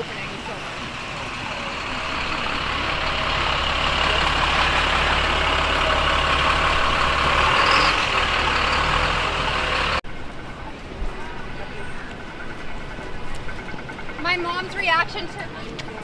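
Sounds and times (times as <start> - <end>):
traffic hiss on wet street: 0.0 - 11.8
heavy vehicle engine running: 0.0 - 16.0.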